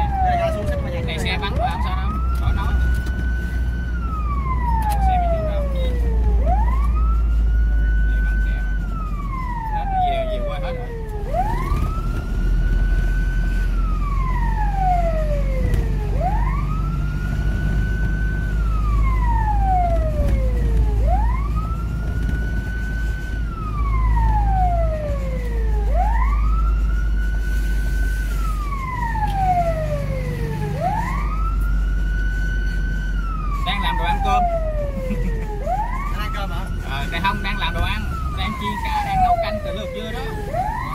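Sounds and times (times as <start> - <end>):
fire engine siren: 0.0 - 40.9
steady low rumble: 10.7 - 40.9.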